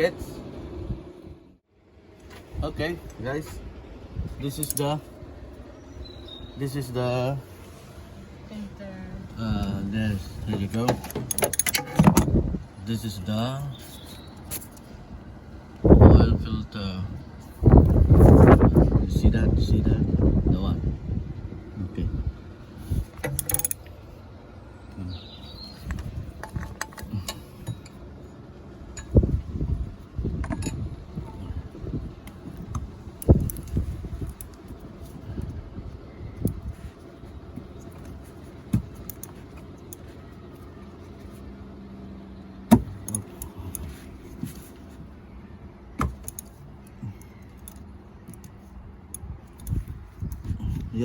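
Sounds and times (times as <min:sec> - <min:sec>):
low steady hum: 0:00.0 - 0:51.0
handling clicks and clinks: 0:04.4 - 0:05.0, 0:10.5 - 0:12.3, 0:23.1 - 0:24.0, 0:25.6 - 0:28.1, 0:28.9 - 0:29.4, 0:30.4 - 0:31.5, 0:36.4 - 0:40.6, 0:42.7 - 0:45.0, 0:46.0 - 0:50.6
metal tools clinking: 0:04.4 - 0:05.1, 0:10.5 - 0:12.2, 0:23.2 - 0:24.0, 0:25.7 - 0:28.0, 0:28.9 - 0:29.4, 0:38.9 - 0:40.1
bird chirp: 0:05.6 - 0:07.0, 0:13.5 - 0:14.8, 0:24.7 - 0:26.2
dull thumps: 0:38.7 - 0:39.0.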